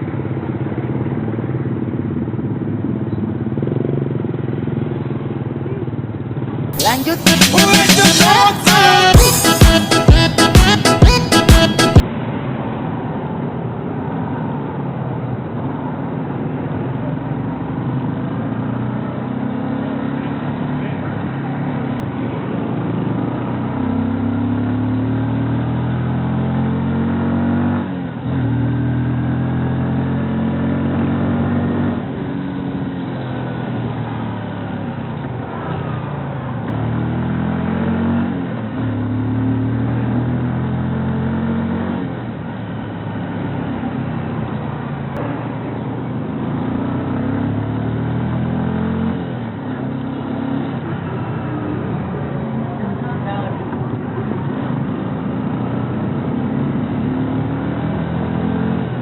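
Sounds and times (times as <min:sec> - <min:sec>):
motorcycle engine revving: 0:17.0 - 0:59.0.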